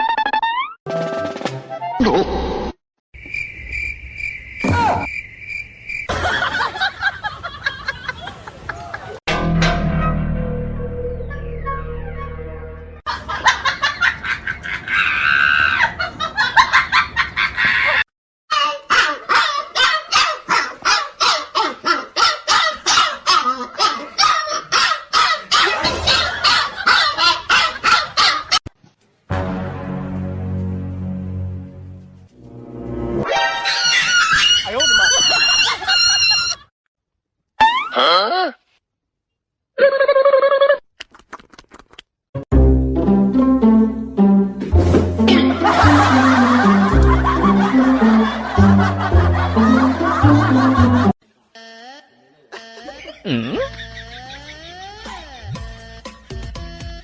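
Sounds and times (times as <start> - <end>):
insect-like chirping: 3.2 - 6.1
dog barking rapidly: 18.9 - 28.6.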